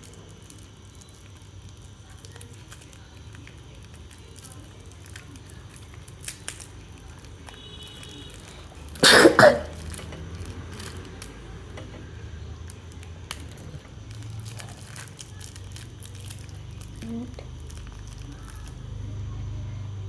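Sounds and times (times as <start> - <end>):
person coughing: 9.0 - 9.8.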